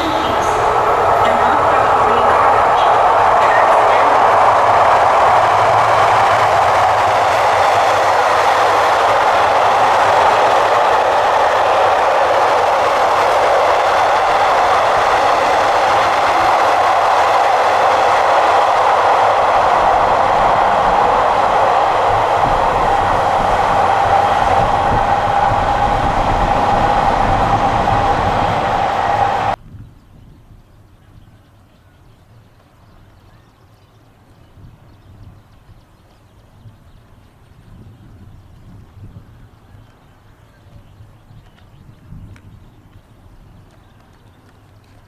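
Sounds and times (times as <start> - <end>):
passenger train rolling on rails: 0.0 - 29.6.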